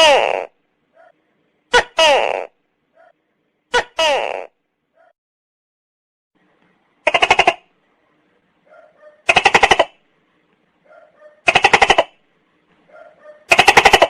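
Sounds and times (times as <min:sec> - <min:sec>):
gecko rattling call: 0:09.2 - 0:10.0, 0:11.4 - 0:12.2, 0:13.5 - 0:14.0.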